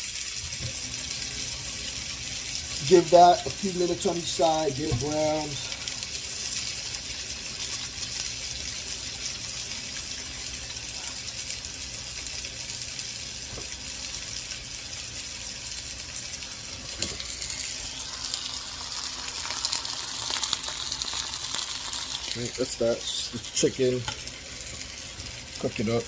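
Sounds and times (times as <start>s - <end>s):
chicken sizzling in a skillet: 0.0s - 26.0s.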